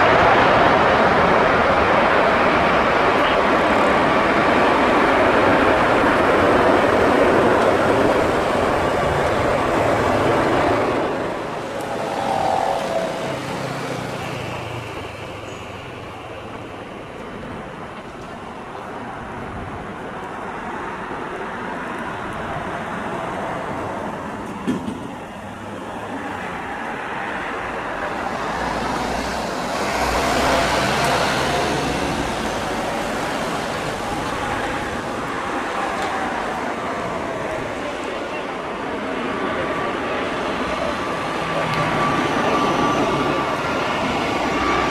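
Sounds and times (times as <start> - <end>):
road traffic noise: 0.0 - 44.9
vehicle passing: 9.9 - 15.4, 28.1 - 35.2.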